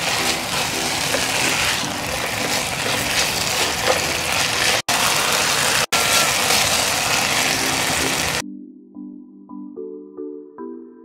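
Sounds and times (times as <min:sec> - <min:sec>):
food sizzling in a pan: 0:00.0 - 0:08.4
spatula scraping pan: 0:00.0 - 0:08.4.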